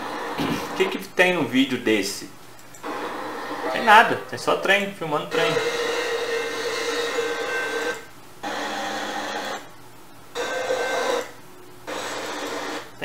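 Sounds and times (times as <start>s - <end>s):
steady held tone: 2.8s - 13.0s.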